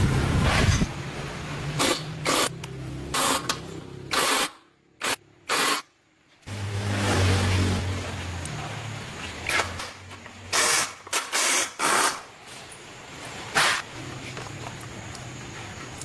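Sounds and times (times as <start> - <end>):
hissing spray bursts: 0.1 - 3.5.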